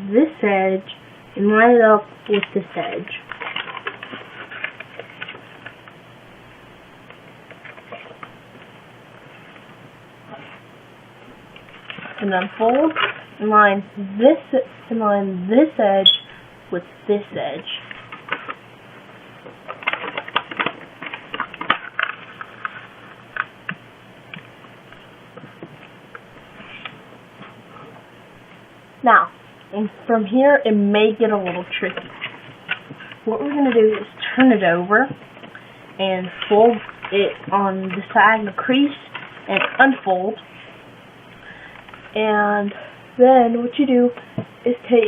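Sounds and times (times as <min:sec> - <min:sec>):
paper crinkling and rustling: 0:03.1 - 0:05.8, 0:19.4 - 0:23.5, 0:31.4 - 0:34.1.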